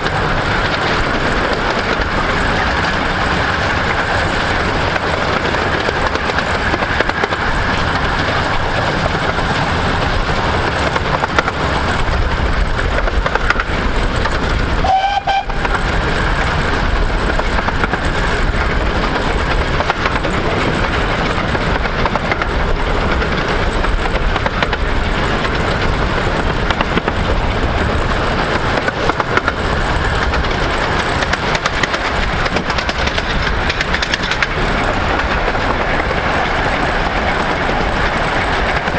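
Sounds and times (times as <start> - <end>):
steam train clattering: 0.0 - 38.9
steam train whistle: 14.8 - 15.8.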